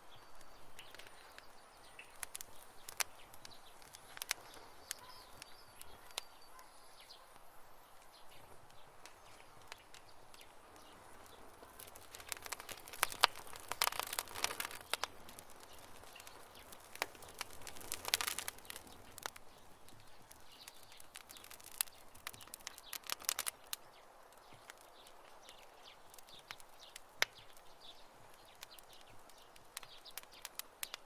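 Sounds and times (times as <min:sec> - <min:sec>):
campfire crackling: 0:00.0 - 0:31.0
faint steady hiss: 0:00.0 - 0:31.0.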